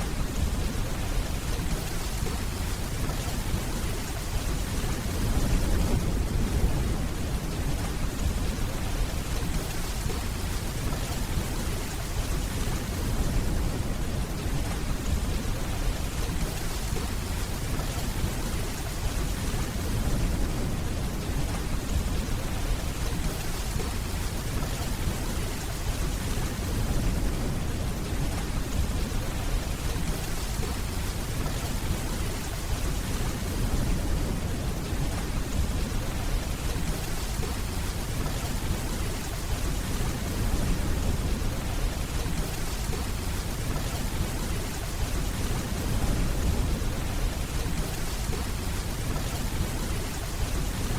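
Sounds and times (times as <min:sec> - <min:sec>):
steady rainfall: 0:00.0 - 0:50.9.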